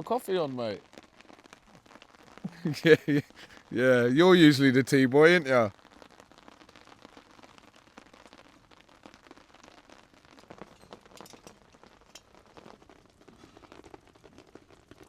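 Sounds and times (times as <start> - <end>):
rain patter: 0.0 - 15.0
water drips: 1.8 - 5.7.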